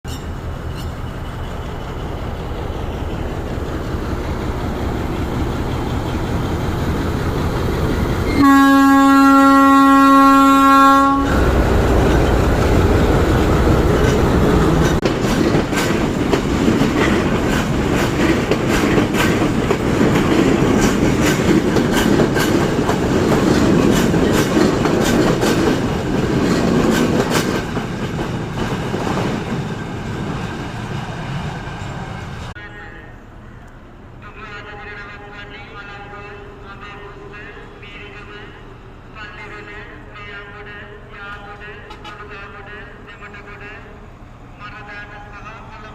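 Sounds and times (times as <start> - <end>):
train rumbling: 0.0 - 45.9
train horn blast: 8.3 - 11.6
wheels clacking over rail joints: 11.3 - 32.5.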